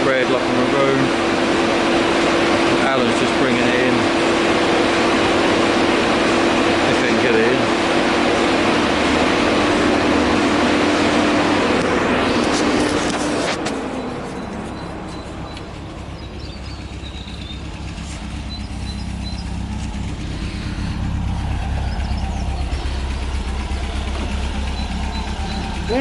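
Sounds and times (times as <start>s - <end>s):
car engine running at low speed: 0.0s - 26.0s
loud rush of noise: 0.5s - 16.2s.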